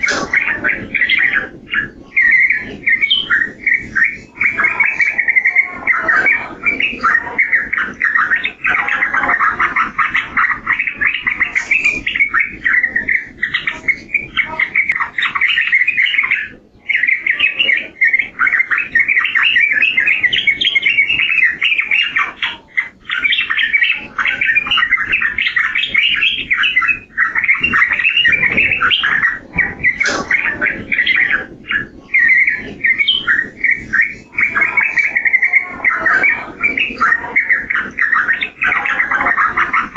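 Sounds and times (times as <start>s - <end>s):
bulbul chattering song: 0.0s - 39.9s.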